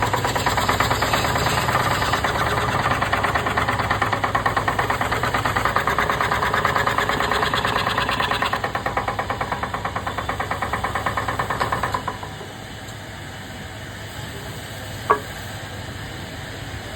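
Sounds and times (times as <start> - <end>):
woodworking machine knocking: 0.0 - 12.6, 15.1 - 15.3
machine hum: 0.0 - 12.9.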